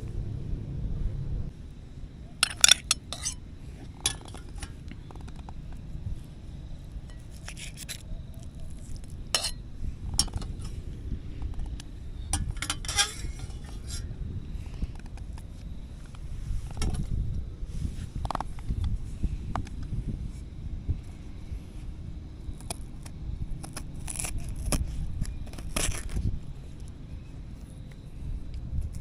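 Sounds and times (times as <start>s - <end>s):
low steady rumble: 0.0s - 29.0s
metal utensils clinking on pots: 2.4s - 3.4s, 4.0s - 4.8s, 9.4s - 9.6s, 12.4s - 13.6s.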